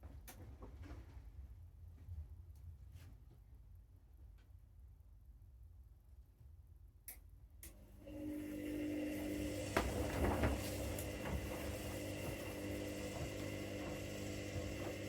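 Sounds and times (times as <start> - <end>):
washing machine motor hum: 7.7 - 15.0.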